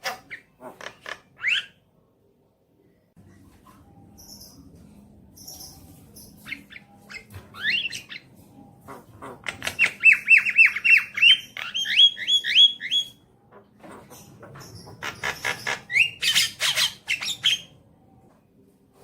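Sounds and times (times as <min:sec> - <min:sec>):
myna chattering and squawking: 0:06.5 - 0:13.0.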